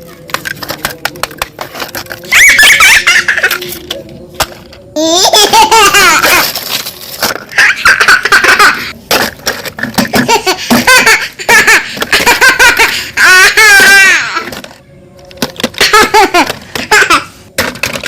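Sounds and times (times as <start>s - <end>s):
young child laughing: 2.4s - 3.8s, 5.0s - 6.6s, 7.5s - 8.9s, 10.1s - 14.4s, 15.8s - 17.3s.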